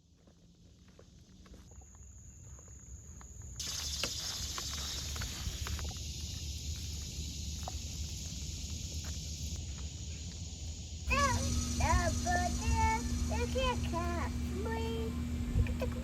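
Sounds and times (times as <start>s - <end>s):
steady high hiss: 3.6s - 16.0s.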